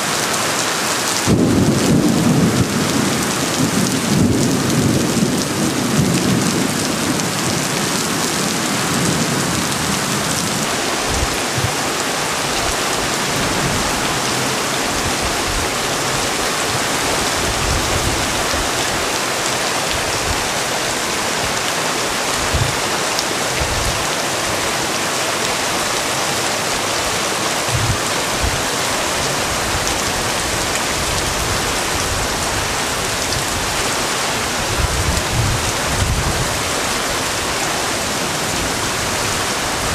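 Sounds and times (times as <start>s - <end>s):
heavy rain hissing: 0.0s - 39.9s
wind gusts thumping microphone: 1.1s - 24.9s, 25.7s - 39.9s.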